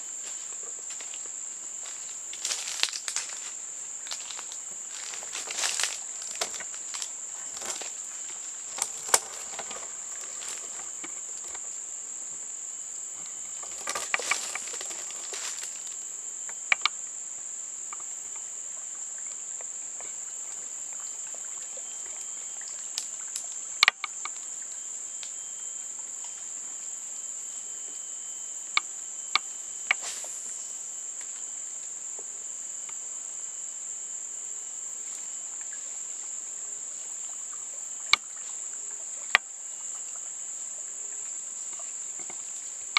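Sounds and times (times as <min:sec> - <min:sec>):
rustling in vegetation: 0:00.0 - 0:11.9, 0:13.3 - 0:16.0
insects droning: 0:00.0 - 0:42.9.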